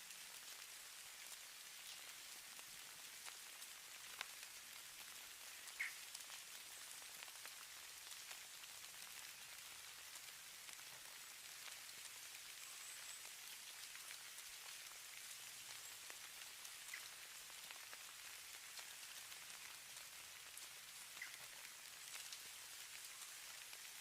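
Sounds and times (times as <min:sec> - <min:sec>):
snow falling hiss: 0:00.0 - 0:24.0.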